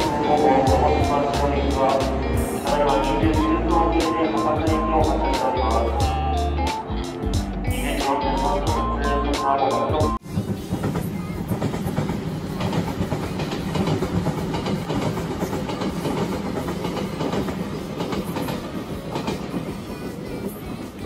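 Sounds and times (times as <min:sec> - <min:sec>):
train wheels and motors rumbling: 0:10.2 - 0:21.0
rail joints clacking: 0:10.3 - 0:21.0.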